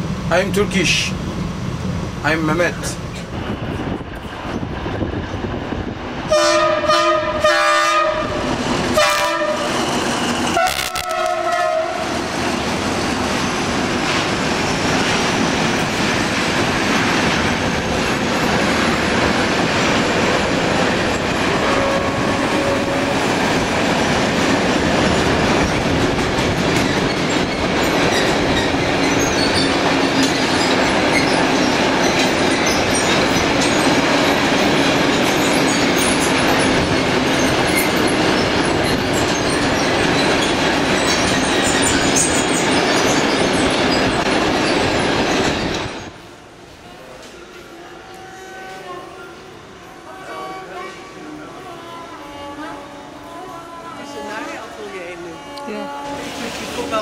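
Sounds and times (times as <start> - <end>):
train wagons rumbling and clattering: 0.0 - 52.6, 53.9 - 57.0
train horn blasts: 6.3 - 9.8, 10.5 - 12.1, 21.6 - 23.3, 48.0 - 56.6.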